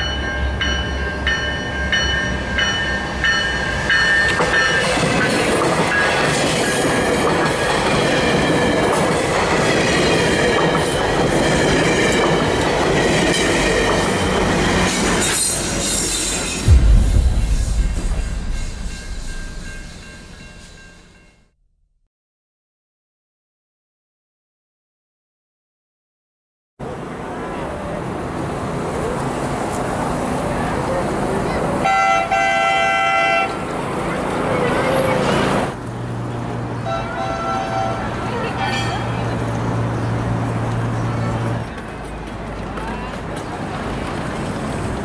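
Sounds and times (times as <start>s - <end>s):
train bell ringing: 0.0s - 5.3s, 17.8s - 21.4s
train wheels rushing on rails: 0.2s - 21.4s, 37.4s - 45.0s
heavy low thump: 16.6s - 21.2s.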